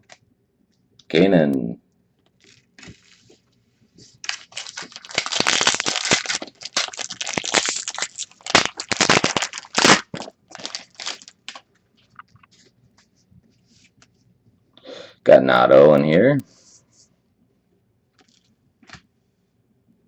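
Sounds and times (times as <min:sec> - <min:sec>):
wrapper tearing and crinkling: 0:02.4 - 0:03.4, 0:04.1 - 0:12.2.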